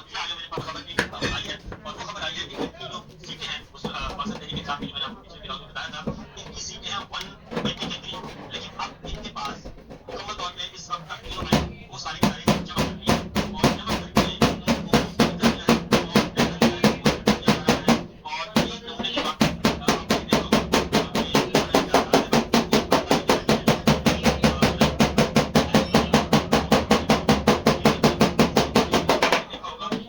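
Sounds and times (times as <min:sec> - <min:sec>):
hammer blows on sheet metal: 0:11.4 - 0:29.6.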